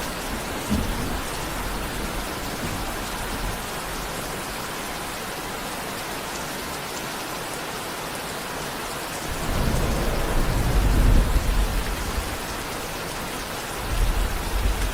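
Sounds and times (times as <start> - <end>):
steady rain falling: 0.0 - 14.9
low rumble of thunder: 9.2 - 14.9.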